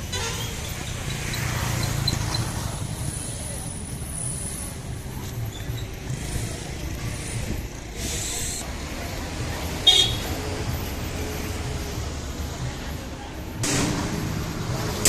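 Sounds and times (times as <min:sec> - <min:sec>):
diesel engine throbbing: 0:13.6 - 0:15.0.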